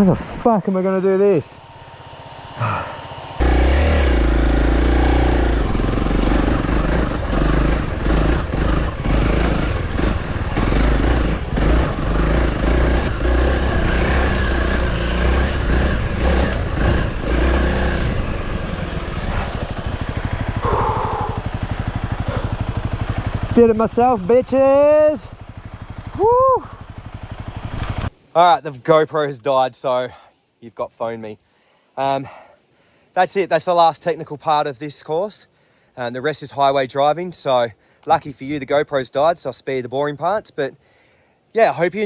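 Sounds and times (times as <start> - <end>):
dirt bike engine revving: 0.6 - 28.1.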